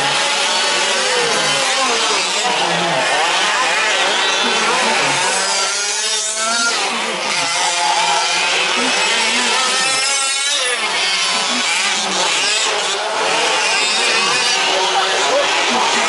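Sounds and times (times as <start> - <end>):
small two-stroke engines racing: 0.0 - 16.0.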